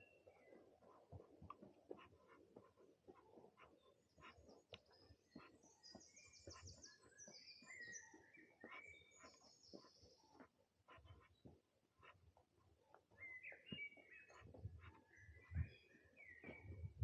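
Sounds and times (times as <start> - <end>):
soft crackles and ticks: 0.0 - 7.2, 8.6 - 13.2
songbird singing: 0.0 - 12.2, 12.9 - 17.0.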